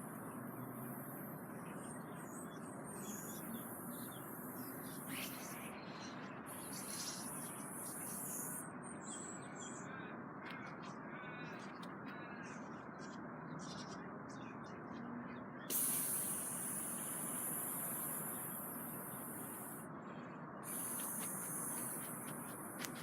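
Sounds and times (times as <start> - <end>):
outdoor background noise: 0.0 - 23.0
spray paint can hissing: 15.7 - 19.8, 20.6 - 23.0
bird calling: 20.6 - 23.0.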